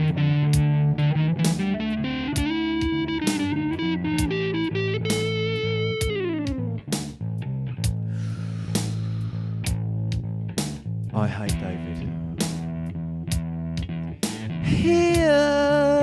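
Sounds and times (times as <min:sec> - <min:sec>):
slow blues guitar: 0:00.0 - 0:16.0.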